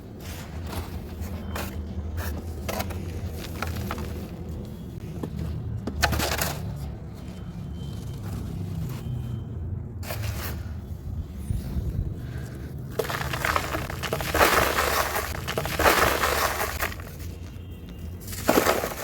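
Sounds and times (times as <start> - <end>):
dry material crunching: 12.9 - 17.6, 18.2 - 19.0.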